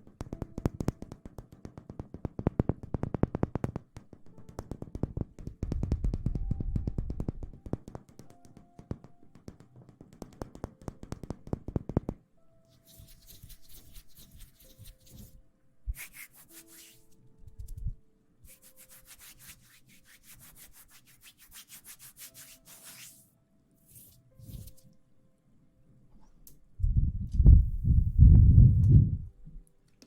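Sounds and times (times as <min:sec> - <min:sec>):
soft rustling strokes: 0:12.6 - 0:25.0.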